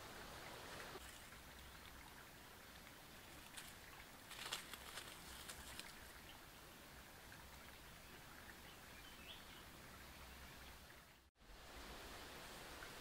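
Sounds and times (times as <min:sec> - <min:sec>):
dry leaves rustling: 0:03.3 - 0:06.1
small bird flapping: 0:03.4 - 0:06.0.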